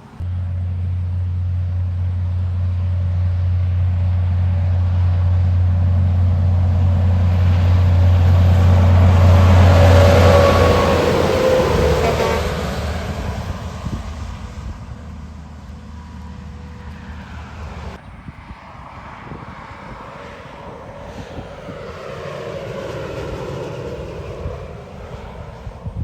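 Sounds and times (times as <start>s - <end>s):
trucks passing on highway: 0.0s - 26.0s.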